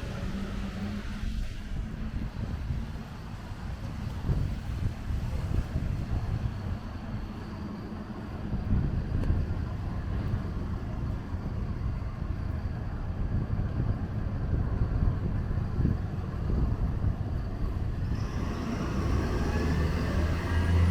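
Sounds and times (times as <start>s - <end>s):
traffic rumble on wet roads: 0.0s - 20.9s
wind buffeting microphone: 0.0s - 20.9s.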